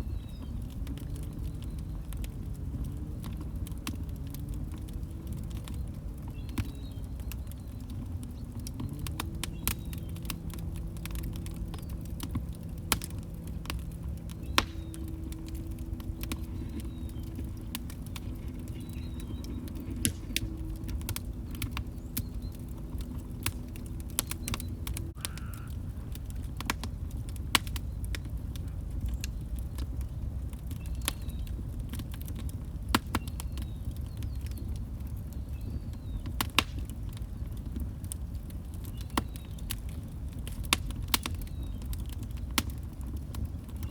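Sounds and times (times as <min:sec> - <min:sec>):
faint low hum: 0:00.0 - 0:31.6
wood fire crackling: 0:00.0 - 0:43.9.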